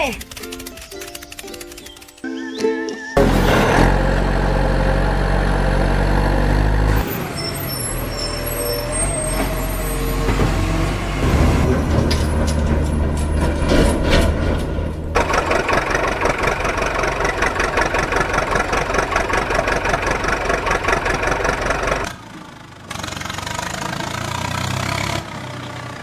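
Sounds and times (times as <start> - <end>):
motor chattering: 0.0 - 2.3.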